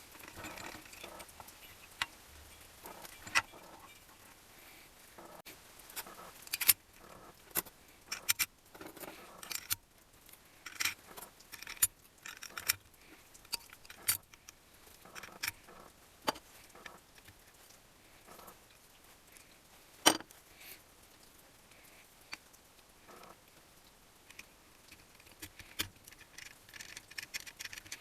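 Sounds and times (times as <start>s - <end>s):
metal tools clinking: 0.1s - 1.5s.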